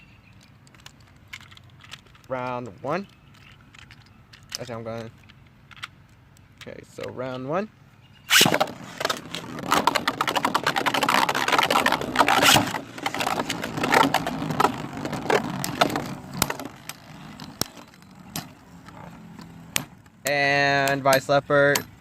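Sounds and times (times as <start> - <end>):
spinning tops clattering together: 8.3 - 17.8.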